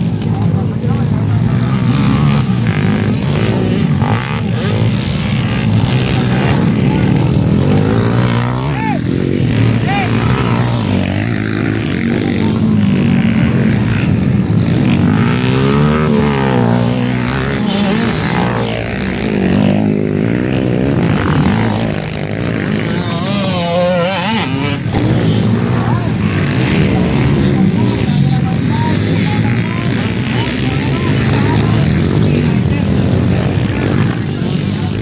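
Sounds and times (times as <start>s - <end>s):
motorcycle engines revving: 0.0s - 35.0s.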